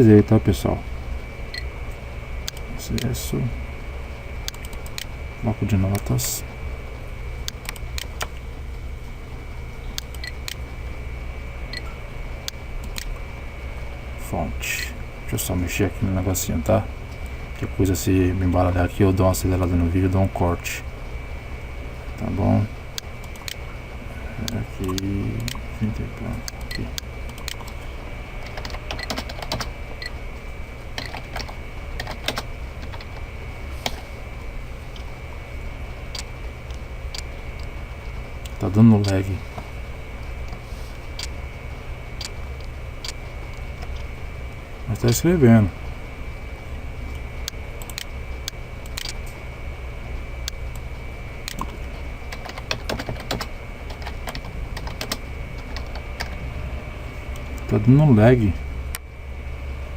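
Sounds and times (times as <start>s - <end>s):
background hum: 0.0s - 59.9s
keyboard typing clicks: 4.4s - 5.1s, 9.9s - 10.6s, 11.7s - 13.1s, 28.4s - 30.2s, 31.0s - 33.2s, 47.4s - 49.2s.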